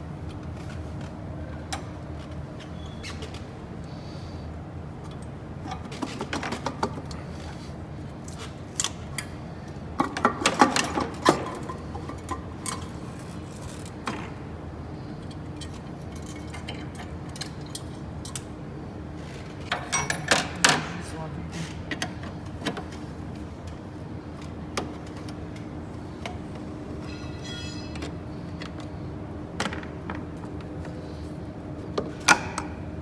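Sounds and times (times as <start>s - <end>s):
steady low hum: 11.5s - 33.0s
metal tools clinking: 27.0s - 28.1s.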